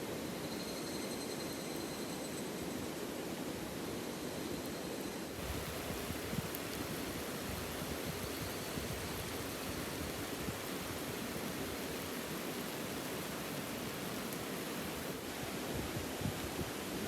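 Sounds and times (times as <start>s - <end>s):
river water rushing: 5.4s - 16.2s.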